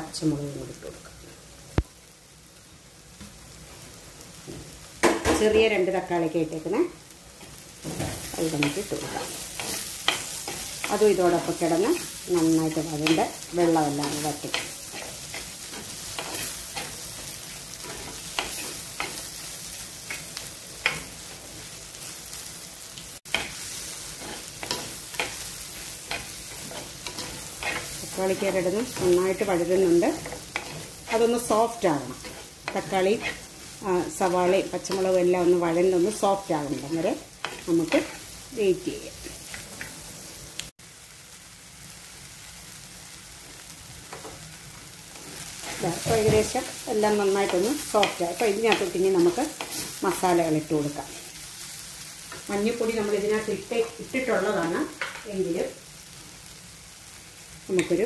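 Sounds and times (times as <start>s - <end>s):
vegetables sizzling in fat: 0.0s - 58.0s
spatula scraping pan: 7.4s - 21.6s, 23.3s - 38.4s.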